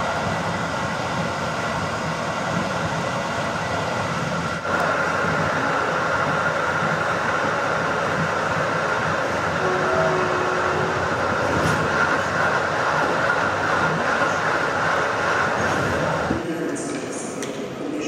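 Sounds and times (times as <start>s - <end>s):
passenger train running at speed: 0.0s - 18.0s.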